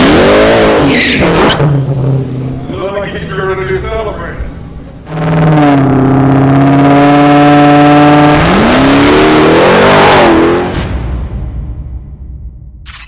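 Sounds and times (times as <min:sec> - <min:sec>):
car engine revving: 0:00.0 - 0:03.4, 0:04.5 - 0:10.9.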